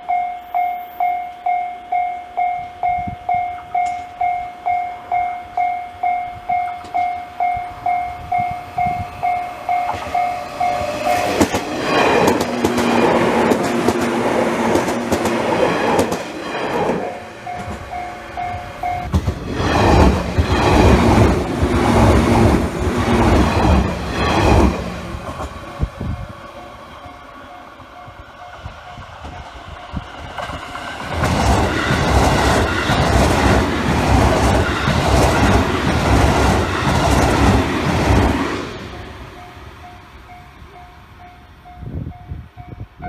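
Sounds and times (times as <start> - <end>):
level crossing warning bell: 0.0 - 11.5, 17.3 - 19.2
train wheels clattering over rail joints: 9.8 - 25.8, 30.3 - 38.6.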